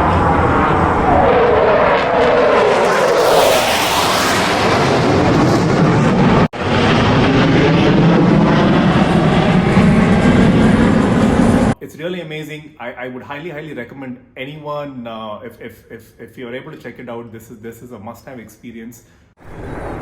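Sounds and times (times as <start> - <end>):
jet roar flying past: 0.0 - 11.8, 19.4 - 20.0.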